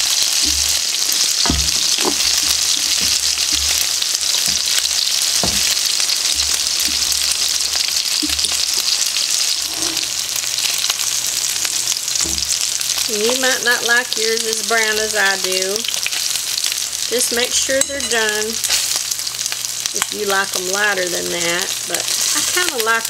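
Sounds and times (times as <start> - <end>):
chicken sizzling in oil: 0.0 - 23.0
fork knocking and scraping pan: 0.2 - 7.4.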